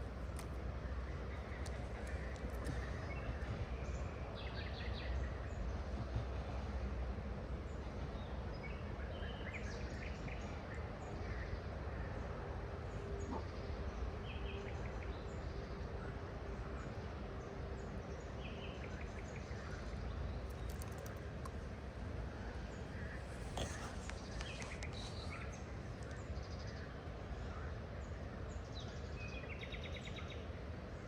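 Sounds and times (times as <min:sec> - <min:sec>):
small birds chirping: 0:00.0 - 0:04.0, 0:19.3 - 0:21.7, 0:22.6 - 0:26.9
faint steady hum: 0:00.0 - 0:31.0
outdoor background rush: 0:00.0 - 0:31.0.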